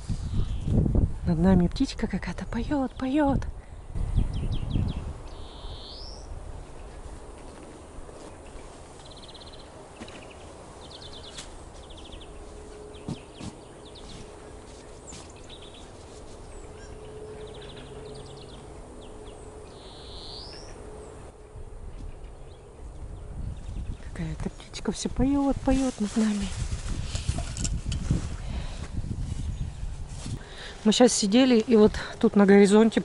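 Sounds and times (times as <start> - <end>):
wind rumble on microphone: 0.0 - 9.6, 10.9 - 33.0
songbird singing trilled phrases: 4.1 - 6.3, 16.5 - 20.8.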